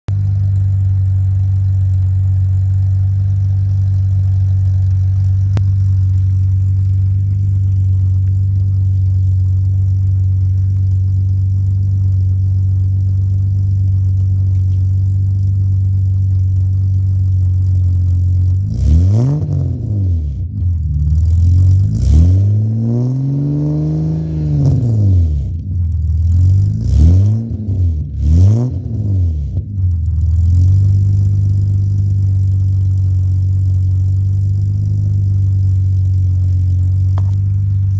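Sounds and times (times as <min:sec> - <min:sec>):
car engine idling: 0:00.1 - 0:37.9
car engine revving: 0:00.2 - 0:37.9.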